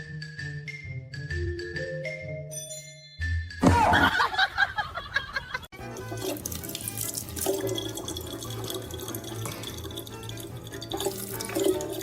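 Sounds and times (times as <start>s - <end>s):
running water: 5.8s - 12.0s.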